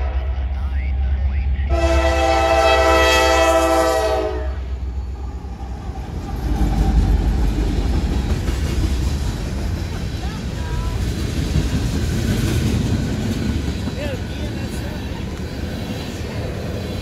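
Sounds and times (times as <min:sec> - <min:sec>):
diesel engines rumbling: 0:00.0 - 0:17.0
locomotive air horn chord: 0:01.7 - 0:04.8.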